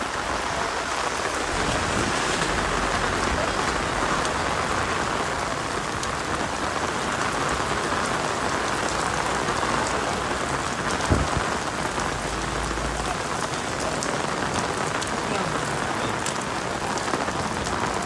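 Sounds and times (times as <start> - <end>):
heavy rain falling: 0.0 - 18.0
short thump: 11.0 - 11.5.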